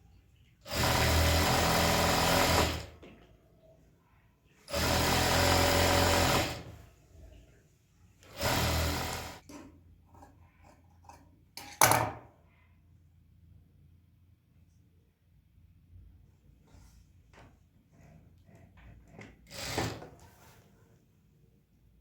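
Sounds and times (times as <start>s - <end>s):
sewing machine stitching: 0.6s - 3.0s, 4.7s - 6.8s, 8.2s - 9.5s, 18.9s - 20.4s.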